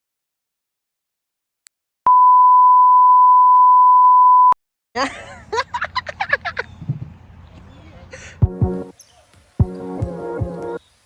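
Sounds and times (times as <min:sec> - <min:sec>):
loud steady beep tone: 0:02.1 - 0:04.6.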